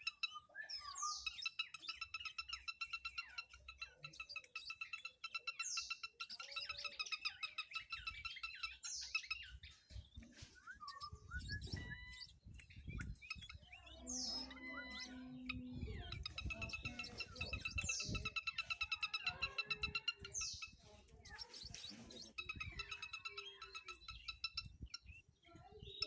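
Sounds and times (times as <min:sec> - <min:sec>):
songbird chirping: 0:00.0 - 0:26.0.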